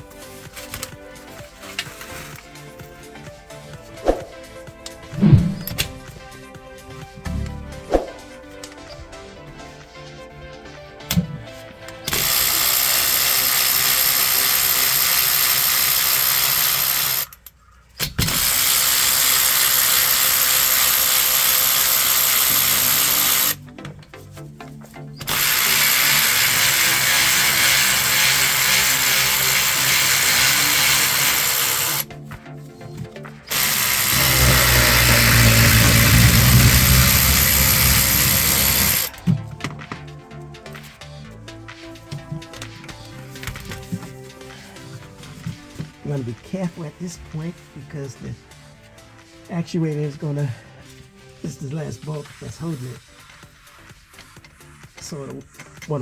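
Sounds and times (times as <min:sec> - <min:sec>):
power drill running: 0:12.1 - 0:17.4, 0:18.2 - 0:23.6, 0:25.2 - 0:32.1, 0:33.5 - 0:39.2.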